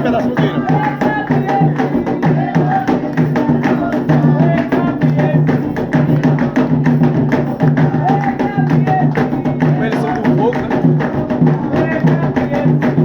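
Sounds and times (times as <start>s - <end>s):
person singing: 0.0s - 5.7s
hand drums: 0.0s - 13.0s
sharp clicking percussion: 0.0s - 13.0s.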